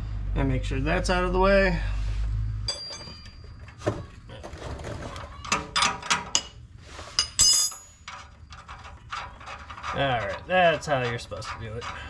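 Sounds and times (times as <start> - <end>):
ringing metallic clink: 2.7 - 3.6, 7.2 - 8.2.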